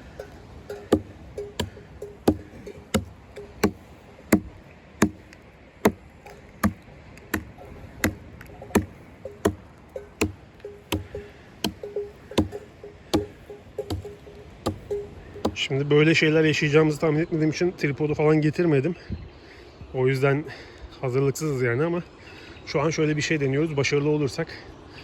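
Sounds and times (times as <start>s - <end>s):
axe chopping into log: 0.7s - 15.6s.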